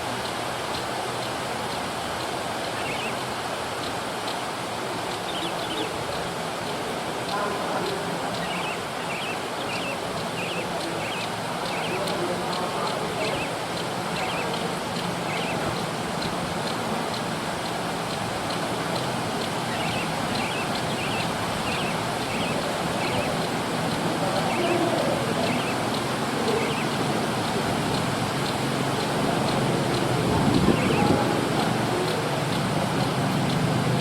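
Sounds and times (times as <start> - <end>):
steady rushing hiss: 0.0 - 34.0
bird chirping: 2.7 - 3.2, 5.3 - 6.2, 7.2 - 17.8, 18.5 - 28.6, 29.4 - 31.2.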